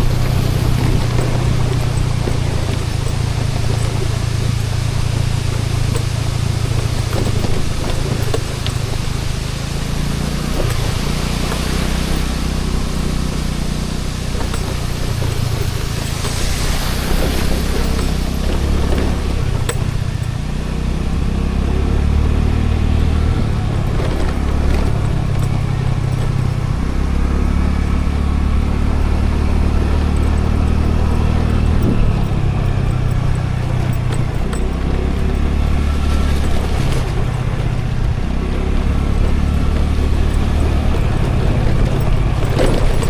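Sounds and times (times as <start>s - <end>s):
road noise rumble: 0.0s - 43.0s
scooter engine running: 0.0s - 43.0s.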